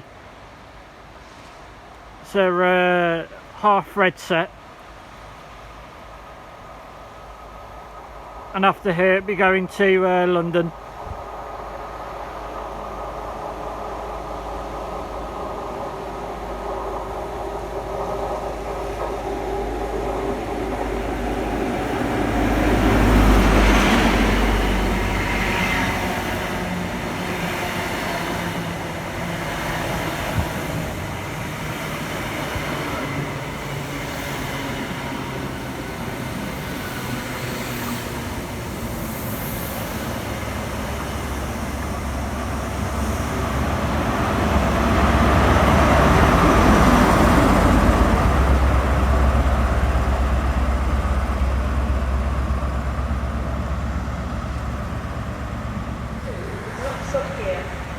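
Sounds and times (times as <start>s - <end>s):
train rumbling by: 0.0s - 57.9s
diesel engine drone: 40.1s - 57.9s.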